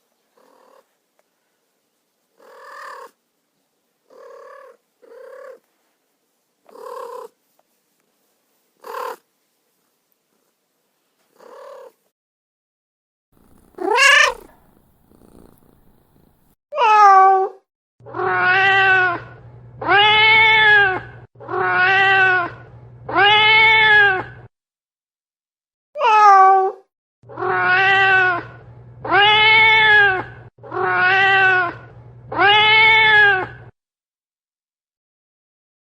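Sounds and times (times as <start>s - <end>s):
cat meowing: 13.4s - 17.4s, 18.1s - 19.2s, 19.9s - 22.5s, 27.4s - 28.5s, 29.1s - 33.6s.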